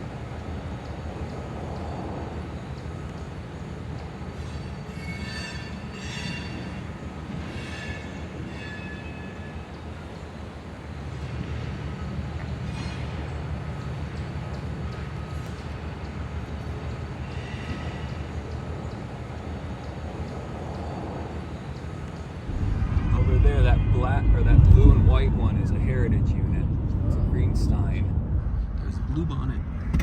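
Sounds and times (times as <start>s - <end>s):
train rumbling past: 0.0s - 30.0s
high-pitched squeals: 4.4s - 9.8s, 20.1s - 26.2s.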